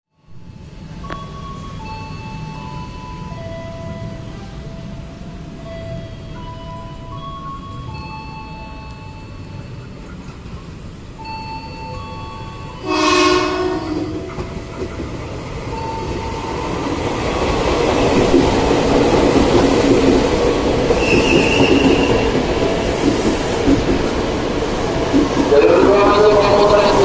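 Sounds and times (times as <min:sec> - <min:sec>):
train rumble: 0:00.2 - 0:27.0
train horn: 0:12.8 - 0:14.4.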